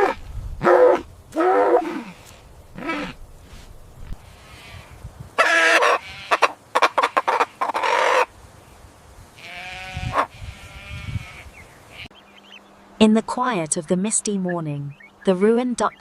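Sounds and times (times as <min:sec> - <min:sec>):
animal pitched call: 0:00.0 - 0:03.2, 0:04.2 - 0:08.3.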